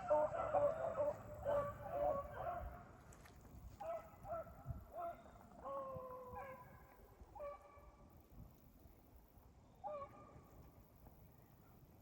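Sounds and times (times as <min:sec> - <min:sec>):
hounds baying and barking: 0:00.0 - 0:02.9, 0:07.4 - 0:07.8.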